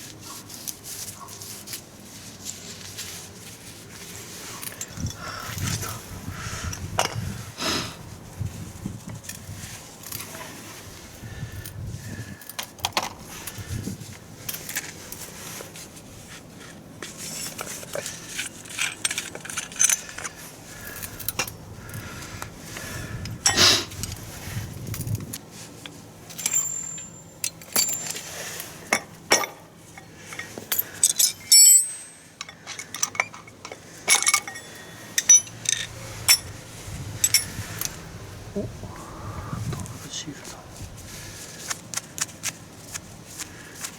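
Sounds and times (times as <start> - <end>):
metallic clinks of hand tools: 26.3 - 36.5, 37.2 - 38.0.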